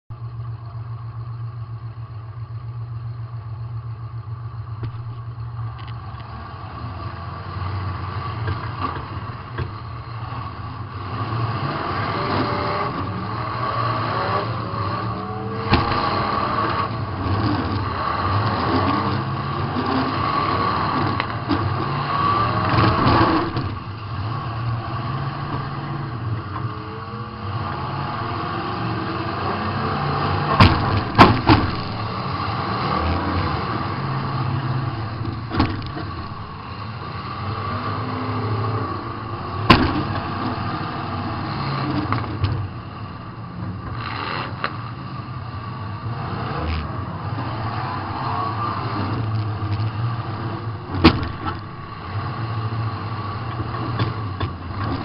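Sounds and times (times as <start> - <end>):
car engine revving: 4.5 - 55.0
car collision bangs: 30.5 - 32.0.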